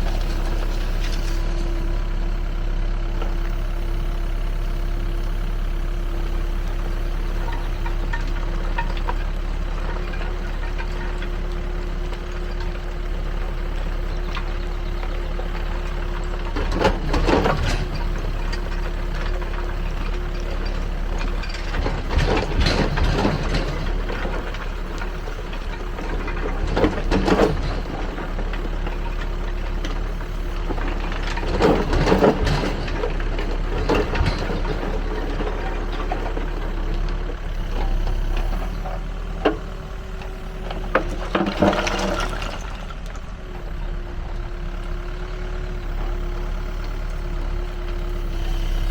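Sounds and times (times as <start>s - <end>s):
backhoe engine running: 0.0s - 48.9s
screening bucket rattling rubble: 7.2s - 12.8s, 13.8s - 44.0s.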